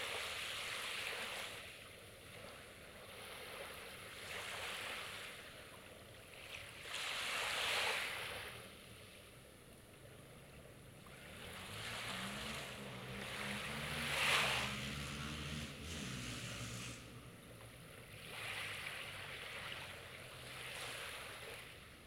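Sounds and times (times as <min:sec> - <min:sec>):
sea waves breaking on shore: 0:00.0 - 0:22.0
low motor hum: 0:10.0 - 0:20.6.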